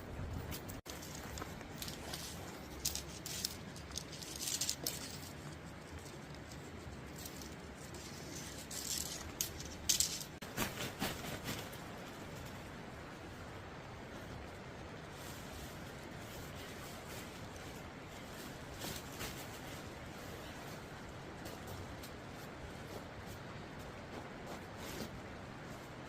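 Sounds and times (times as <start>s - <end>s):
light rattling and rustling clicks: 0.3s - 12.7s.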